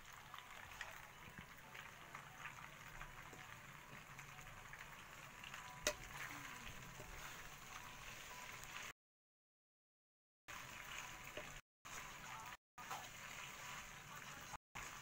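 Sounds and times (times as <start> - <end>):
wood fire crackling: 0.0 - 8.0
pasta sizzling in a pan: 0.0 - 9.0, 10.5 - 15.0
spatula stirring in a pan: 0.1 - 8.9, 10.5 - 15.0.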